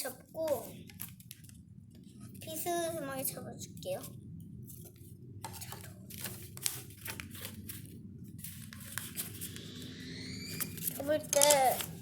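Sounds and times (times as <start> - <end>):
paper being folded and creased: 5.6 - 12.0.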